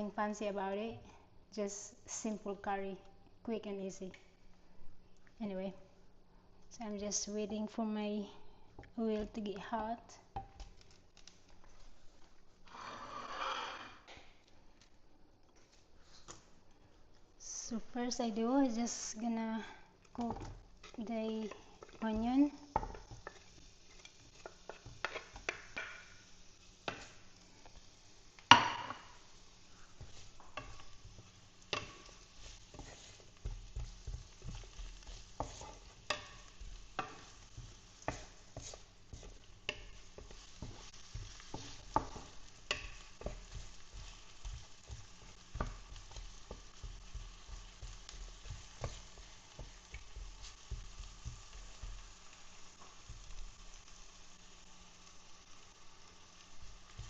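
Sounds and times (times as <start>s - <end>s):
utensil scraping a pan: 12.7s - 14.0s, 29.9s - 50.8s
onion sizzling in oil: 17.4s - 57.0s.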